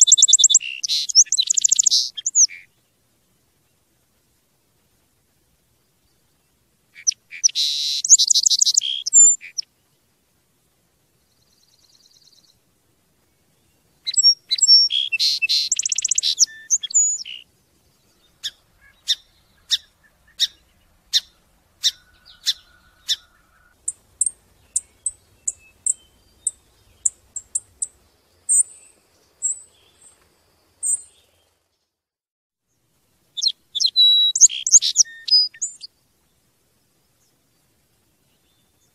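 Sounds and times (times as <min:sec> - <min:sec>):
bird chirps: 0:00.0 - 0:02.8, 0:06.0 - 0:10.0, 0:11.2 - 0:12.6, 0:13.2 - 0:32.0, 0:33.4 - 0:36.0
songbird trills: 0:00.0 - 0:03.0, 0:05.7 - 0:10.1, 0:11.1 - 0:31.9, 0:32.7 - 0:38.9.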